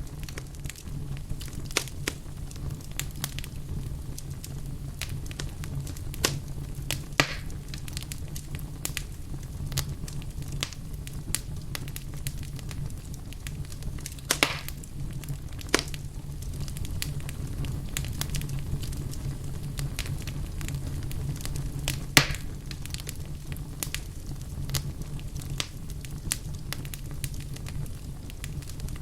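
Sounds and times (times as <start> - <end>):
wood fire crackling: 0.0 - 29.0
logs popping: 6.2 - 8.1, 13.7 - 14.9, 15.6 - 16.0, 21.9 - 23.1.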